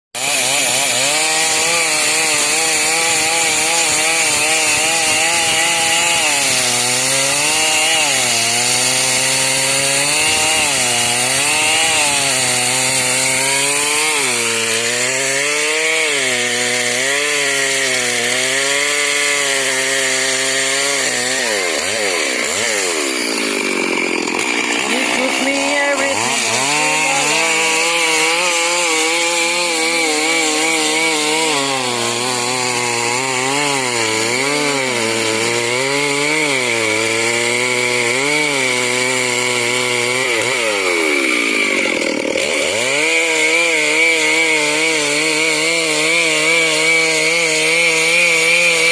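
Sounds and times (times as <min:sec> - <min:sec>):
chainsaw cutting wood: 0:00.2 - 0:48.9.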